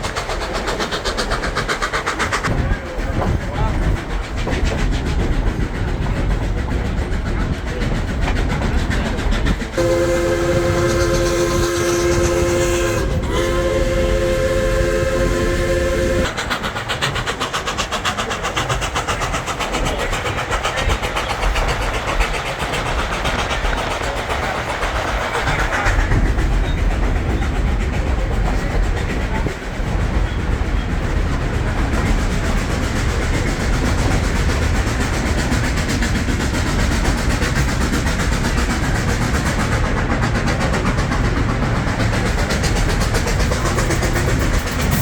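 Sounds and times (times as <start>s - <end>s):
train rumbling on rails: 0.0s - 45.0s
steam locomotive whistle blasts: 9.8s - 16.4s.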